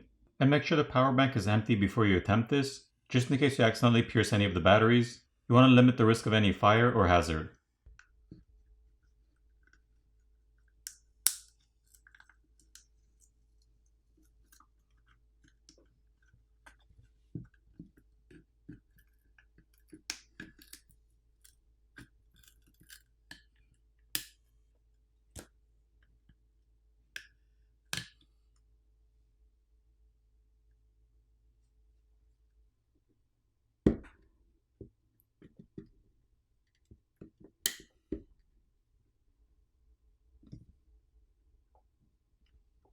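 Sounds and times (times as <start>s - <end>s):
clicks of handling plastic and tools: 9.4s - 24.4s.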